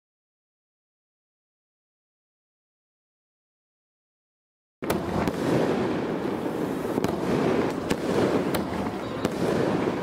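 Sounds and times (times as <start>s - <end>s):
fireworks bangs: 4.8s - 10.0s
fireworks crackling: 4.8s - 10.0s.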